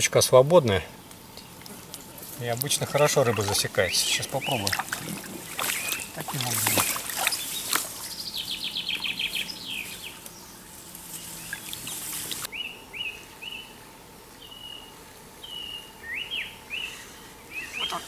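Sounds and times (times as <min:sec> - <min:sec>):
steady hiss: 0:00.0 - 0:12.5
songbirds singing: 0:00.0 - 0:13.8, 0:14.4 - 0:18.0.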